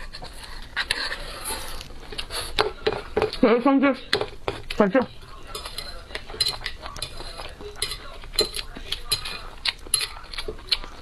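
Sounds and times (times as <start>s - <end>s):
utensils clinking against bowl: 0.0s - 11.0s.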